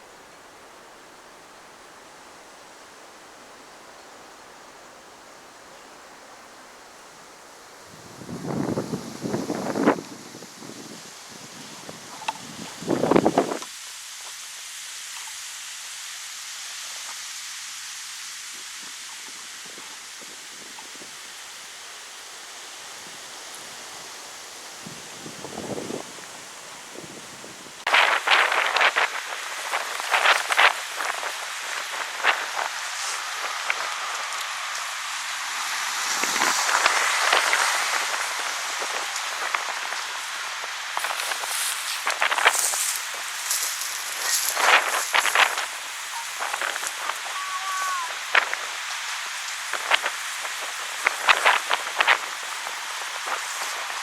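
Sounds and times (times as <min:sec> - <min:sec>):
wind through trees: 0:00.0 - 0:54.0
faint ticks: 0:15.1 - 0:15.4.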